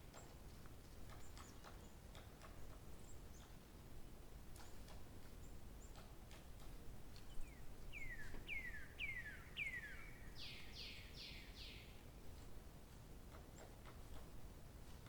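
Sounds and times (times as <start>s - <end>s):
songbird singing: 7.1s - 12.2s.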